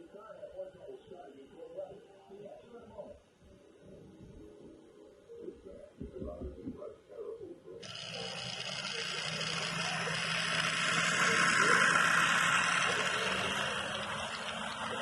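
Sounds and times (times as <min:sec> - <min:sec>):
model train motor hum: 0:07.8 - 0:15.0
wheels rushing on track: 0:07.8 - 0:15.0.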